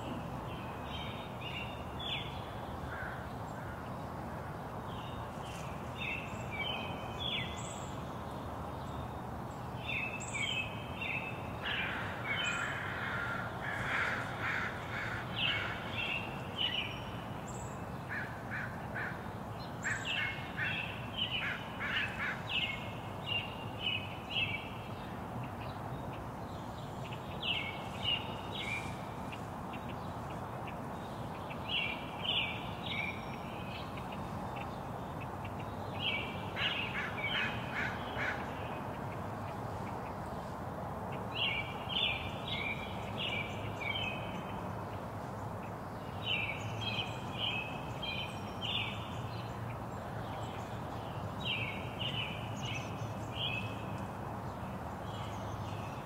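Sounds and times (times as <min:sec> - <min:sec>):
background hiss: 0:00.0 - 0:56.0
birds calling: 0:09.9 - 0:40.6.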